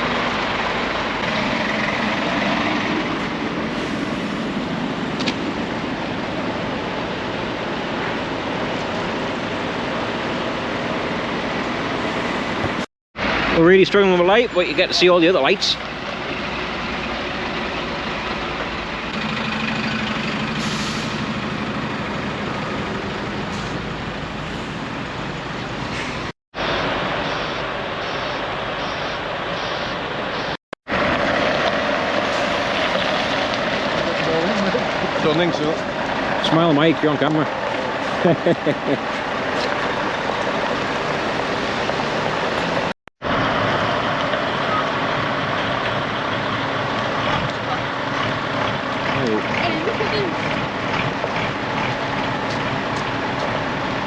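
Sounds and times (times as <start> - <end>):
diesel lorry engines running: 0.0 - 54.0
air brakes hissing: 3.7 - 4.6, 20.5 - 21.4, 25.8 - 26.3.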